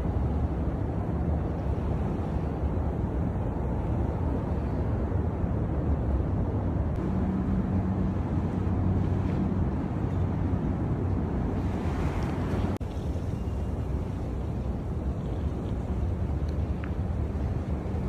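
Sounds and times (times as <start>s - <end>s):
low engine-like hum: 0.0s - 18.0s
street traffic rumble: 5.6s - 18.0s.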